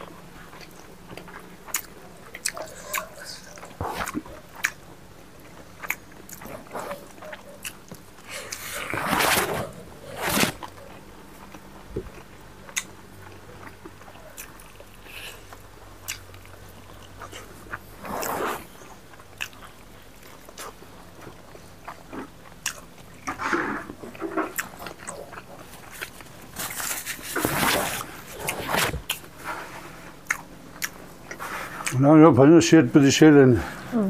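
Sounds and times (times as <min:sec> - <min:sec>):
people chewing food: 0:00.0 - 0:32.6
breathy noises: 0:08.2 - 0:10.6
lip smacks: 0:30.2 - 0:32.0.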